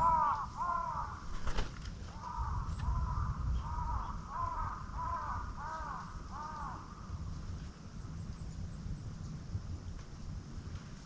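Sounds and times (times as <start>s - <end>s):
crow cawing: 0.0s - 1.3s, 2.1s - 7.1s.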